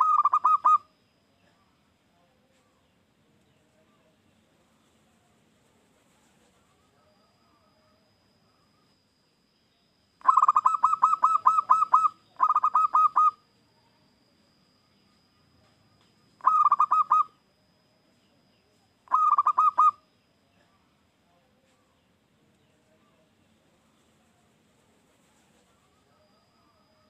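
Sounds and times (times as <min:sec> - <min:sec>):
dove cooing: 0:00.0 - 0:00.9, 0:10.2 - 0:13.4, 0:16.4 - 0:17.4, 0:19.1 - 0:20.0.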